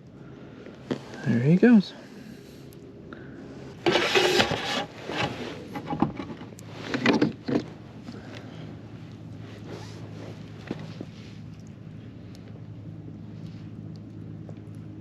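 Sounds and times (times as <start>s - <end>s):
gear scraping on kayak: 3.8s - 7.7s.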